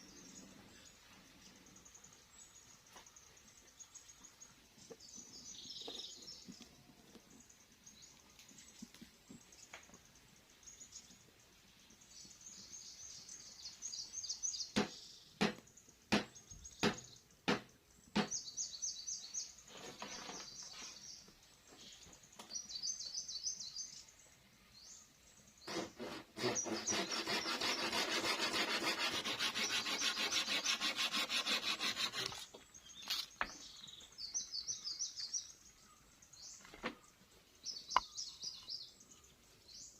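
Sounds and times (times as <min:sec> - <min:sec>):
sharp wood chops: 0:14.8 - 0:18.4
rasping on wood: 0:25.7 - 0:32.5.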